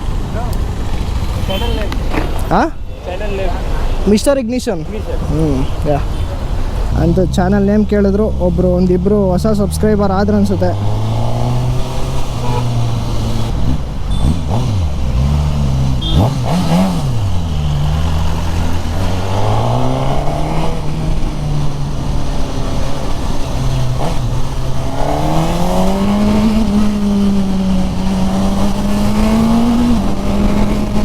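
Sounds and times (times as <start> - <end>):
motorcycle engine running: 7.5 - 31.0.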